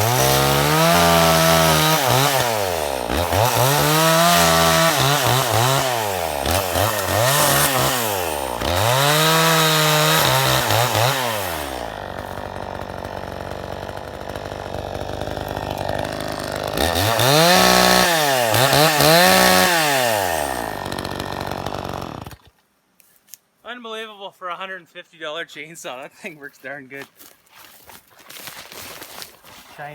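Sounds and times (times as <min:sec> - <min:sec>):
chainsaw revving: 0:00.0 - 0:22.5.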